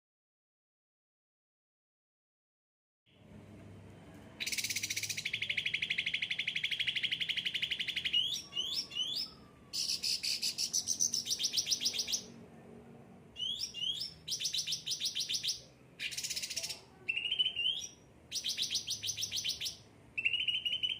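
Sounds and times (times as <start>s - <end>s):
songbird singing buzzy trills: 4.4s - 12.4s, 13.4s - 20.9s.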